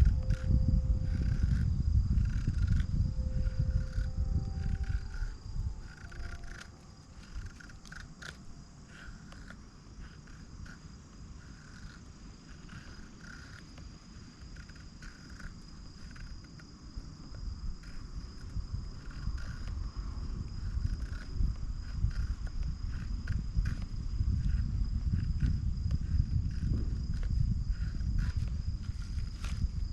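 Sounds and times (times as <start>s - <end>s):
low rumble: 0.0s - 10.1s, 17.0s - 29.9s
insect chirps: 0.0s - 29.9s
insects trilling: 0.0s - 29.9s.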